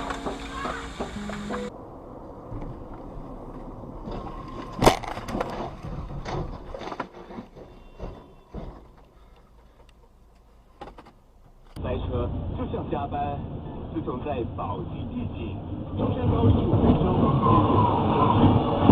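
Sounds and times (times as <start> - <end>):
road noise: 0.0 - 18.9
knocks and rattles: 4.0 - 9.8.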